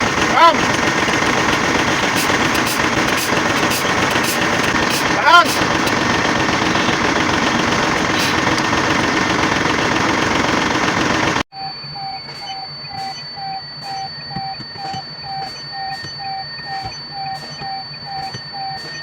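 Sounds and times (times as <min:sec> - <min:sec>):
diesel truck engine running: 0:00.0 - 0:11.5
electronic beeping: 0:00.0 - 0:19.0
faint high whine: 0:11.5 - 0:19.0.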